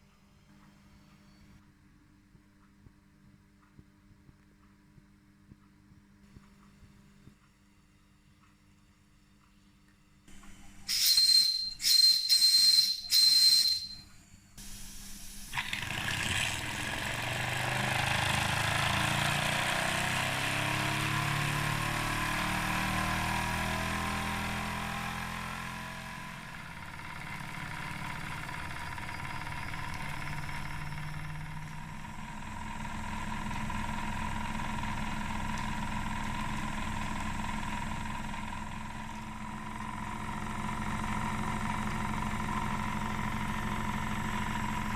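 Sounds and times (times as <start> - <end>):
toy steam engine running: 10.7 - 14.0, 26.5 - 44.9
steam whistle blasts: 10.8 - 15.4
steam hissing: 14.6 - 16.9.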